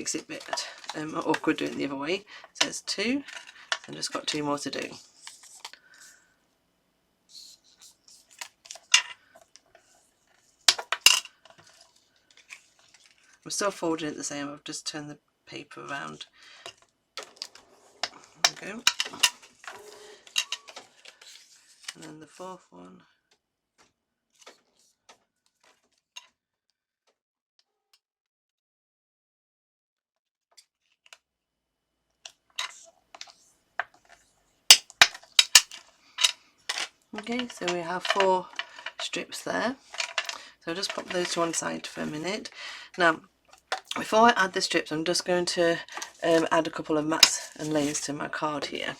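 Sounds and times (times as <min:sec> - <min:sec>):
paper rustling: 0:00.0 - 0:06.2, 0:17.2 - 0:22.4, 0:32.6 - 0:42.5, 0:45.6 - 0:48.9.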